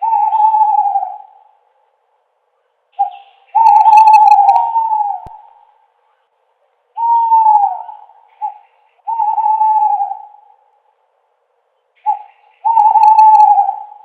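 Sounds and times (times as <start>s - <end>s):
owl hooting: 0.0s - 1.6s, 3.0s - 5.8s, 7.0s - 10.8s, 12.0s - 14.0s.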